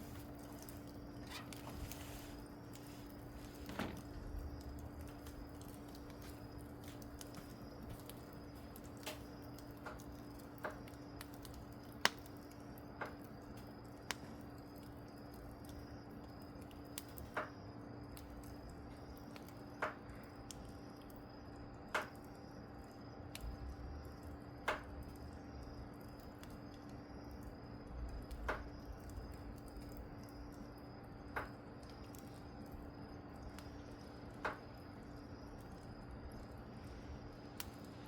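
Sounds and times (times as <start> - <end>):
wood fire crackling: 0.0 - 38.0
sharp fire pops: 2.7 - 12.4, 24.6 - 25.1, 28.1 - 30.0.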